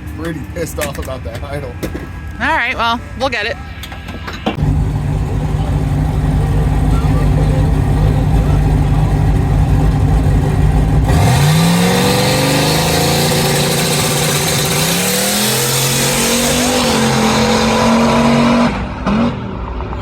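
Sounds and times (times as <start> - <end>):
drag race car engine: 3.8 - 20.0.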